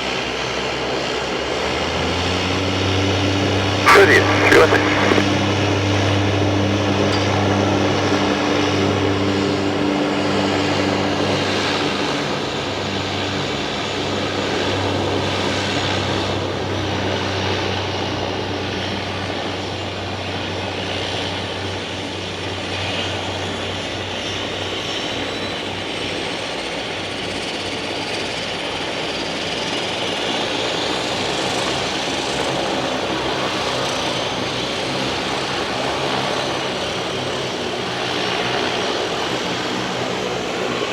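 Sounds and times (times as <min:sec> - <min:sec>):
propeller engine humming: 0:00.5 - 0:40.9
broad rushing noise: 0:03.8 - 0:06.5.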